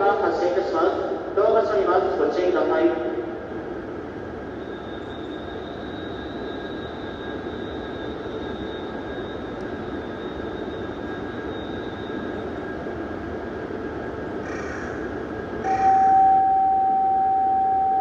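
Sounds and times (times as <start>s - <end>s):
train rumble: 0.0s - 18.0s
thin high tone: 15.7s - 18.0s.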